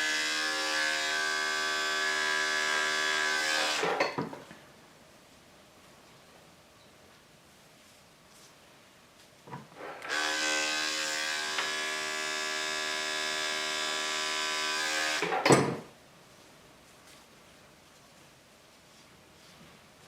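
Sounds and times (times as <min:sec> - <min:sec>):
electric clippers buzzing: 0:00.0 - 0:04.0, 0:09.8 - 0:15.4.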